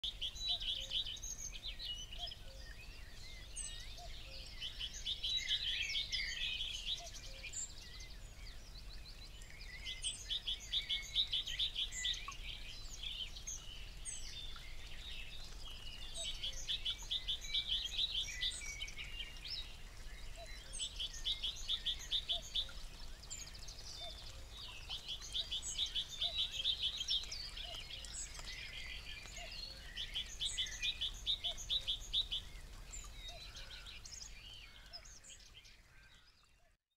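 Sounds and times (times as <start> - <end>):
birds chirping and calling: 9.1 - 36.2.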